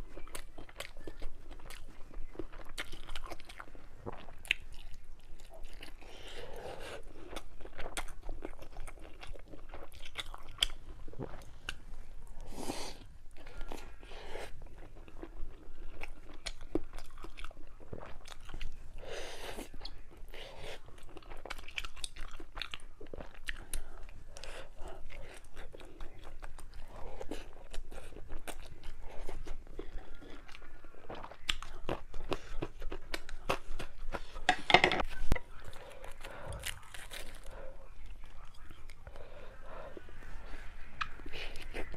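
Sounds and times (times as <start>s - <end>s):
person chewing and biting food: 0.1s - 11.8s, 19.5s - 39.2s.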